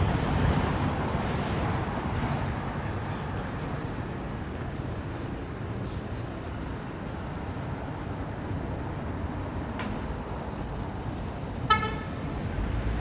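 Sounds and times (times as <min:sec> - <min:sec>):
passing road traffic: 0:08.0 - 0:13.0.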